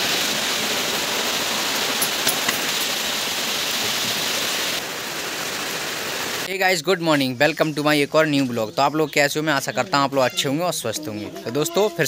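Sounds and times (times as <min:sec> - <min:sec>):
rain falling: 0:00.0 - 0:06.9.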